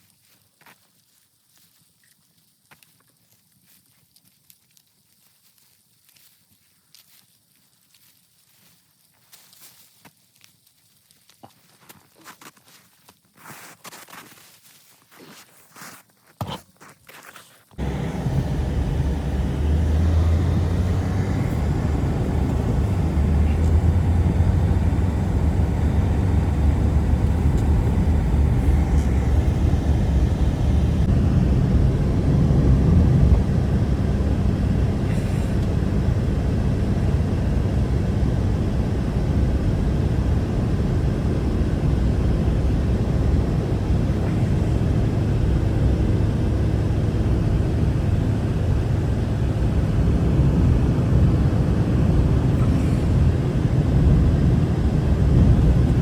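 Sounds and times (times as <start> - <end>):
strong blizzard wind: 17.8 - 56.0.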